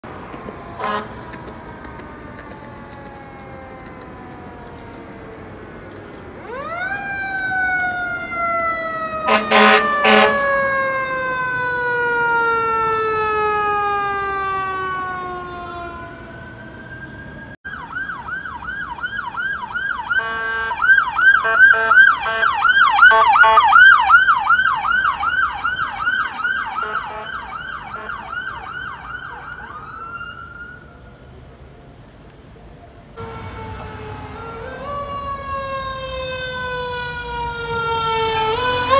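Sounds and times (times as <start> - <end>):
wailing siren: 0.1 - 31.3, 33.2 - 38.9
siren yelp: 0.6 - 5.7, 6.4 - 31.1, 33.2 - 38.9
air horn blasts: 0.8 - 1.2, 9.2 - 10.6, 20.2 - 20.8, 21.4 - 23.7, 26.8 - 28.2, 33.2 - 34.6.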